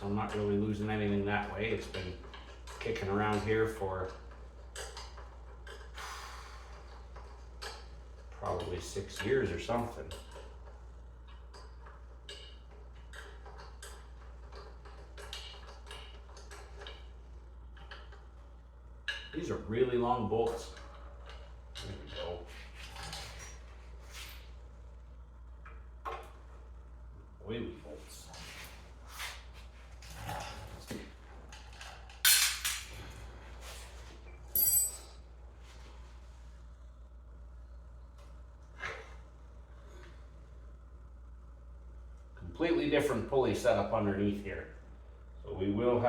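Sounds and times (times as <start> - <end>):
low steady hum: 0.0 - 46.0
metal parts clanking: 32.2 - 33.0, 34.5 - 35.2
ringing metallic clink: 34.5 - 35.2.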